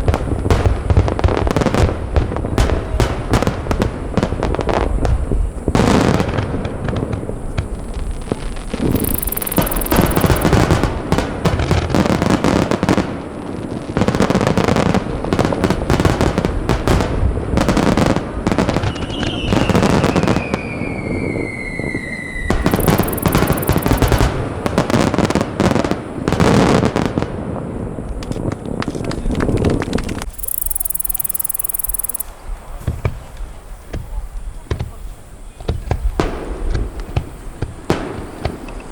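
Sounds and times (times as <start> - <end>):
fireworks bursting: 0.0 - 38.9
falling firework whistle: 8.8 - 10.6, 18.8 - 24.3.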